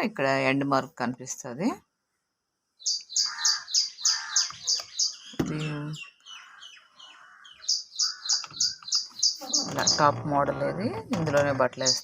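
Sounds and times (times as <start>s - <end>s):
bird chirping: 2.8s - 12.0s.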